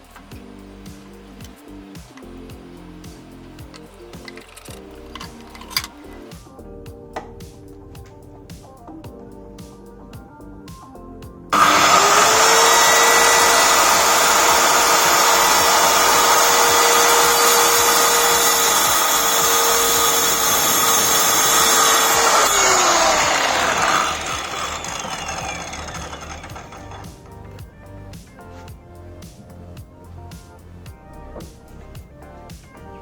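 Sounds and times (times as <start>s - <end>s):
circular saw whining: 11.5s - 28.7s.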